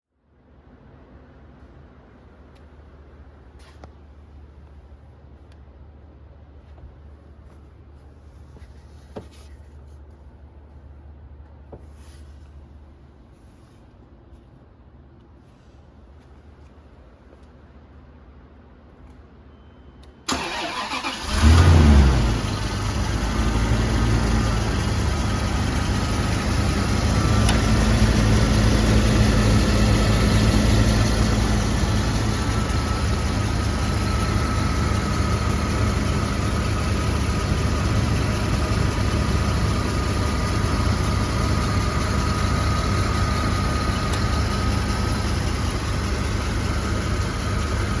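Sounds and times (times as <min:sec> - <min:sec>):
engine revving and idling: 0:20.4 - 0:48.0.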